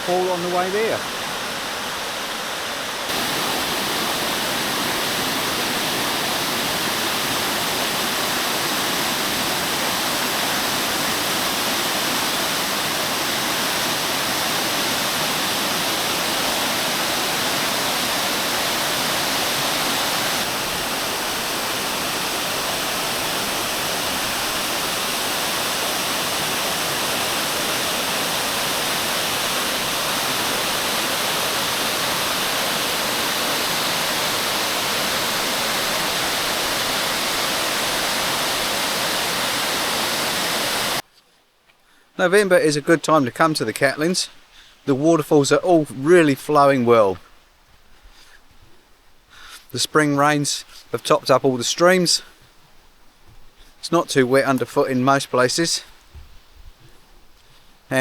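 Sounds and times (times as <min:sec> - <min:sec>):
small waterfall rushing: 0:00.0 - 0:41.1.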